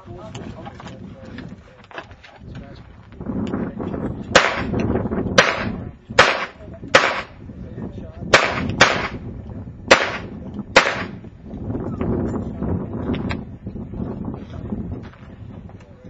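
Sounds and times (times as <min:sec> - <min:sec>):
gunshots: 0:04.4 - 0:04.8, 0:05.4 - 0:07.4, 0:08.3 - 0:09.2, 0:09.9 - 0:11.2.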